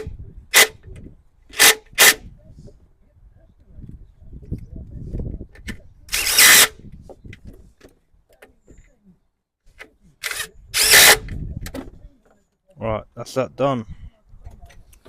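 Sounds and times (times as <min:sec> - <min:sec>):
power drill driving fasteners: 0:01.5 - 0:02.2, 0:06.1 - 0:06.8, 0:10.2 - 0:11.4.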